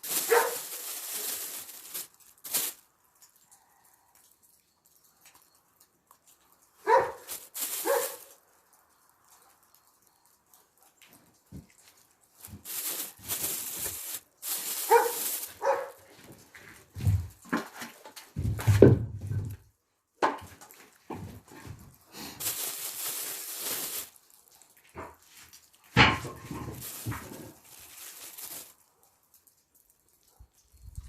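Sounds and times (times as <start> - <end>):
rustling noise: 0.0 - 2.8, 6.8 - 8.4, 11.3 - 19.6, 20.5 - 28.8
dog barking: 0.2 - 0.7, 6.8 - 8.3, 14.8 - 16.1.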